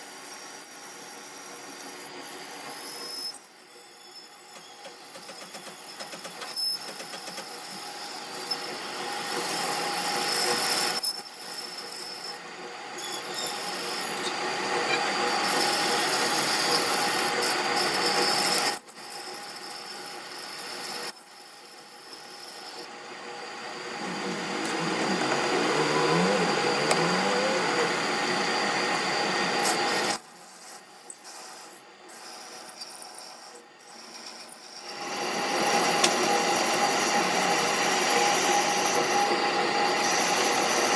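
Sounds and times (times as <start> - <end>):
metal rasping and scraping: 13.0 - 22.9, 23.9 - 37.3
machine humming: 22.9 - 30.2.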